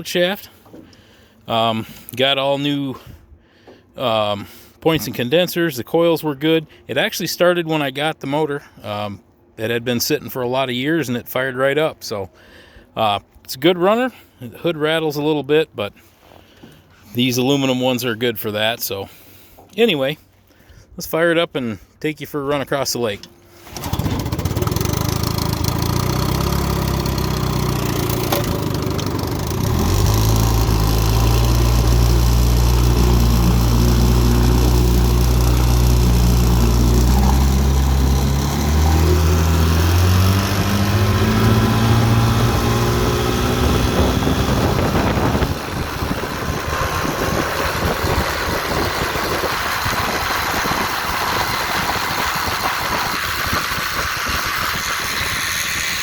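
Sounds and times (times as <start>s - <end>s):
outboard motor running: 23.3s - 56.0s.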